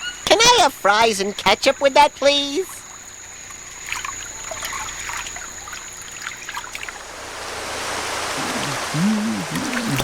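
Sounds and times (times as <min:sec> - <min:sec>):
water trickling and rushing: 0:02.6 - 0:10.0.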